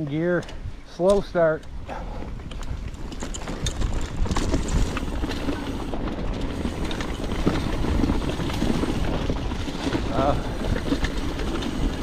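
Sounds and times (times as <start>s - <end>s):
bike clicking and rattling: 0.0s - 12.0s
wind on microphone: 1.6s - 12.0s
tyres rumbling on dirt: 2.7s - 12.0s.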